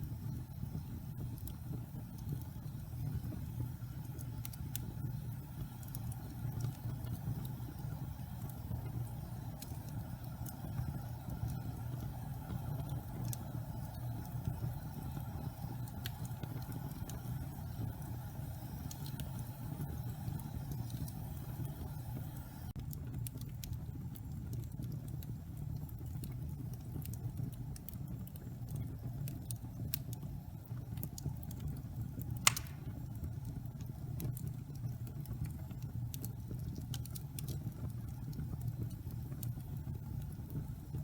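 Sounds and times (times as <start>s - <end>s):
wood fire crackling: 0.0s - 41.0s
loud pop of fire: 32.4s - 33.1s.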